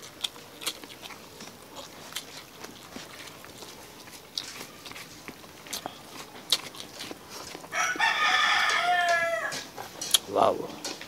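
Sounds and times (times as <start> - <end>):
people chewing food: 0.0 - 11.0
rooster crowing: 7.7 - 9.7.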